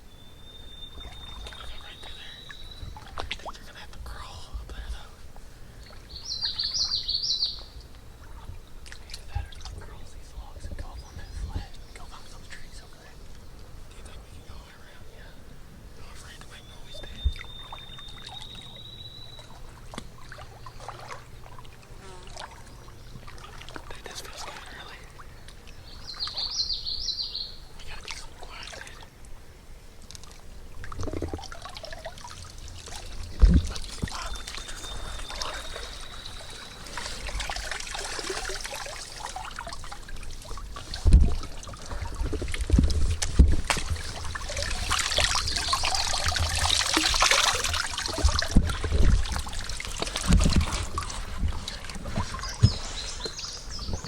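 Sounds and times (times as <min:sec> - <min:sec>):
bird chirping: 0:00.0 - 0:05.0, 0:05.8 - 0:21.0, 0:23.9 - 0:28.6, 0:33.4 - 0:39.2, 0:44.1 - 0:47.5, 0:52.2 - 0:54.0
water splashing and trickling: 0:00.9 - 0:15.3, 0:16.0 - 0:26.9, 0:27.6 - 0:54.0
dull bumps and knocks: 0:42.2 - 0:44.4, 0:48.1 - 0:54.0.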